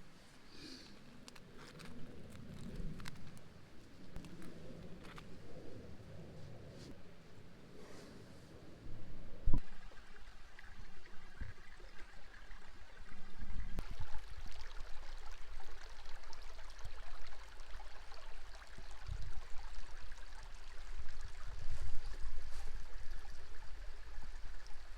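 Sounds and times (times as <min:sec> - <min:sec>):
stream flowing: 0:09.6 - 0:24.9.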